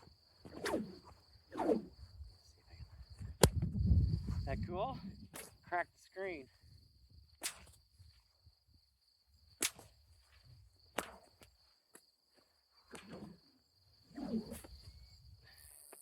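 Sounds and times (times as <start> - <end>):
insects chirring: 0.0 - 16.0
whip cracking: 0.5 - 1.9, 7.4 - 7.8, 9.6 - 10.0, 10.9 - 11.3, 12.9 - 13.4
whip swishing: 0.5 - 1.9, 7.4 - 7.8, 9.6 - 10.0, 10.9 - 11.3, 12.9 - 13.4, 14.2 - 14.8.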